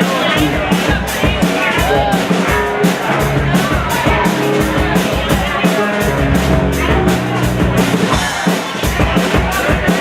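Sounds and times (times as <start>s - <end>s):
sustained bass notes: 0.0s - 9.6s
live rock band playing: 0.0s - 10.0s
steady drum beat: 0.0s - 10.0s.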